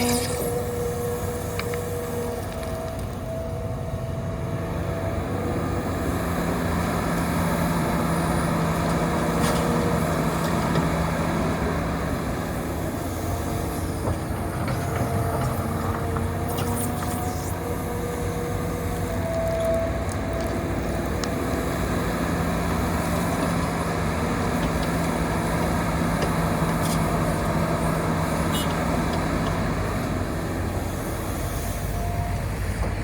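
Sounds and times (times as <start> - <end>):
high hydraulic whine: 0.0 - 3.4, 12.4 - 33.0
excavator engine and hydraulics: 0.0 - 33.0.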